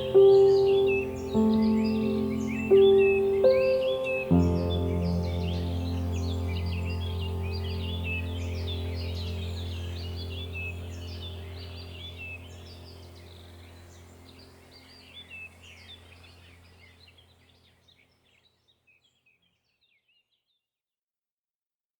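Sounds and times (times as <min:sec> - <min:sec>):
low steady hum: 0:00.0 - 0:17.9
small birds chirping: 0:00.0 - 0:20.6.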